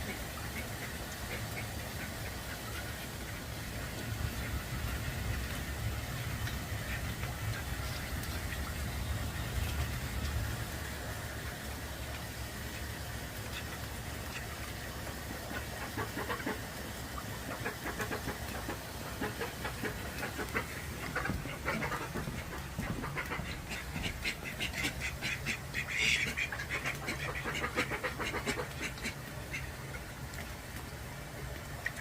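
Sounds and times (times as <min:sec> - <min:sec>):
duck quacking: 0:15.5 - 0:16.6, 0:17.5 - 0:29.7.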